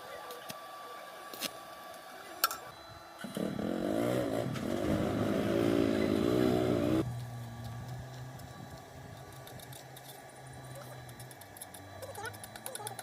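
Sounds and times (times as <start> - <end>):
low steady hum: 0.0 - 13.0
small engine revving: 3.2 - 7.5.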